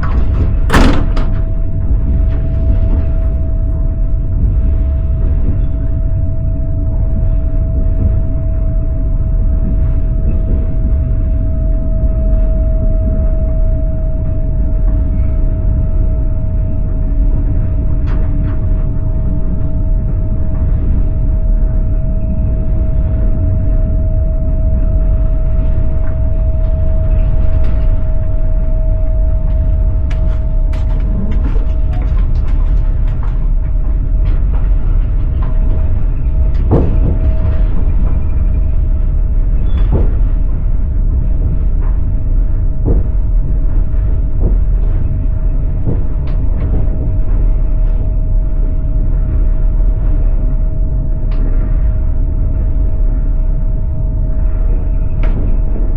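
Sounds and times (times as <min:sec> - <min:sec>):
constant mid-pitched hum: 0:00.0 - 0:55.9
train rumbling on track: 0:00.0 - 0:55.9
train wheels clattering over joints: 0:25.4 - 0:52.0.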